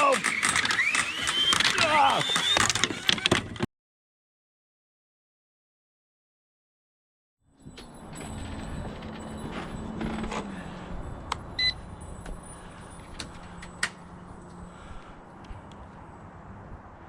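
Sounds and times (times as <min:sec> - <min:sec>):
sharp clicks: 0:00.0 - 0:03.4
short electronic beep: 0:11.6 - 0:11.8.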